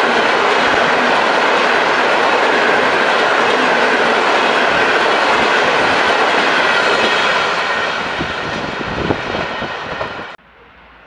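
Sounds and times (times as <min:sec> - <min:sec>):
train wheels rushing on rail: 0:00.0 - 0:11.0.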